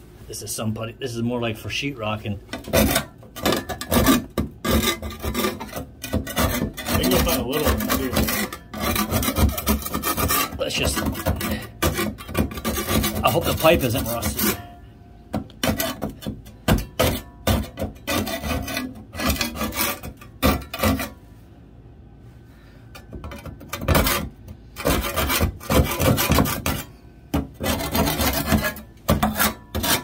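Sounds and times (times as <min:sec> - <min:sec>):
brush scrubbing metal pipe: 0:02.6 - 0:14.8, 0:17.0 - 0:21.3, 0:23.8 - 0:27.0, 0:27.6 - 0:30.0.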